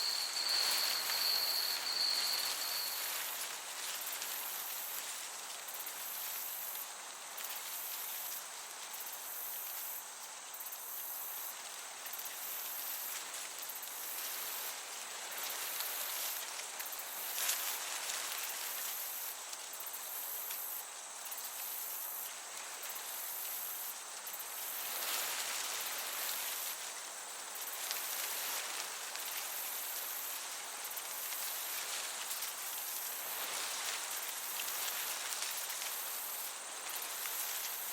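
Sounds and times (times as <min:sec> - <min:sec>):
crickets chirping: 0:00.0 - 0:37.9
gentle breeze: 0:00.0 - 0:37.9.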